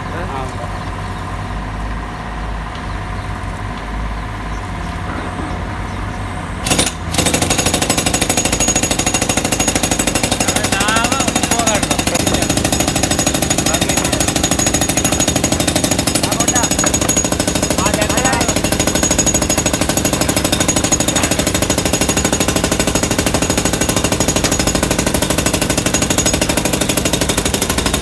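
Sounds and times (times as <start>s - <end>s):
mini excavator running: 0.0s - 28.0s
rapid even hammering: 6.6s - 28.0s.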